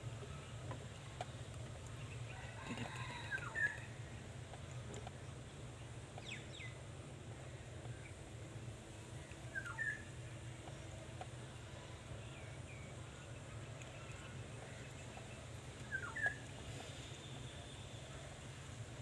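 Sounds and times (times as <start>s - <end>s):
steady low hum: 0.0s - 19.0s
faint bird chirps: 9.5s - 10.1s, 13.1s - 18.2s
bird calls dipping and rising: 13.2s - 16.6s.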